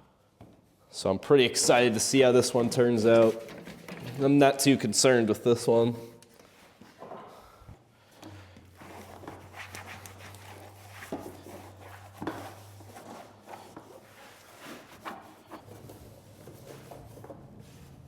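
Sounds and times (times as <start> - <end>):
cloth wiping plastic panels: 1.4 - 5.2, 8.8 - 18.0
light knocks and handling noise: 2.6 - 4.6.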